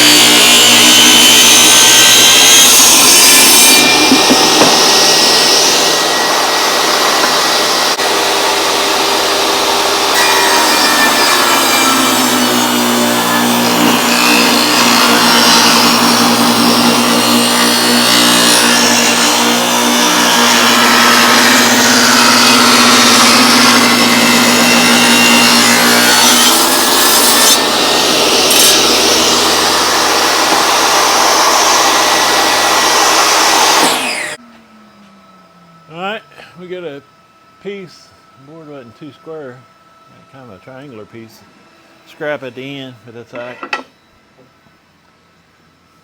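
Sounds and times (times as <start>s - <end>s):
power saw cutting wood: 0.0s - 34.4s
saw motor winding down: 0.0s - 37.0s.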